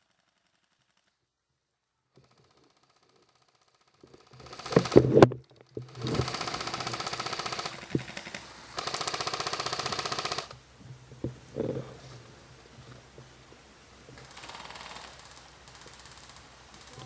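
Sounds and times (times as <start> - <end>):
airsoft gun full-auto bursts: 2.2 - 5.2, 5.8 - 10.6, 14.2 - 17.0.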